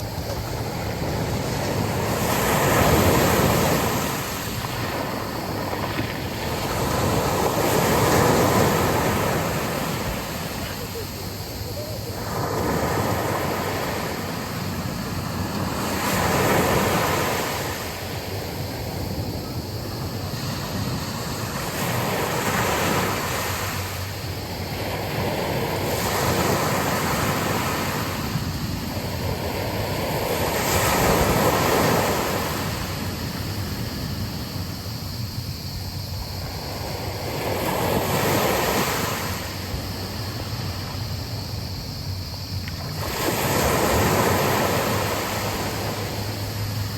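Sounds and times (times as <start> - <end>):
sea waves breaking on a beach: 0.0 - 46.9
wind: 0.0 - 46.9.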